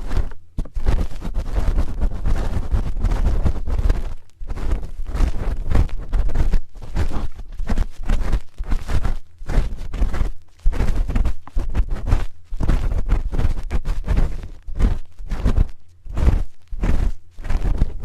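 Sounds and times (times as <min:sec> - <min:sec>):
spoon scraping microphone: 0:00.0 - 0:18.0.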